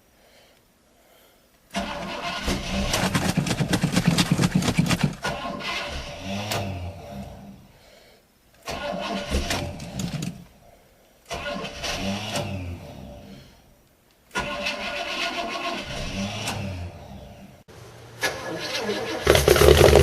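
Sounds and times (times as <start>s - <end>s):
car engine cranking on starter: 1.7s - 6.8s, 8.6s - 10.5s, 11.3s - 13.1s, 14.3s - 16.9s, 18.2s - 20.0s.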